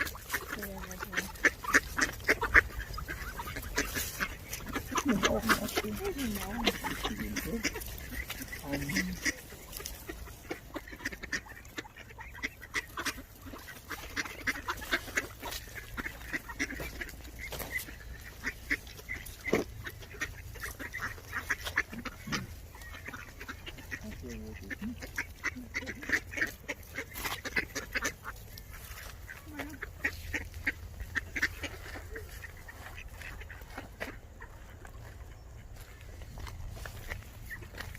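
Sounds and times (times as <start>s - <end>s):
ducks quacking: 0.0s - 37.9s.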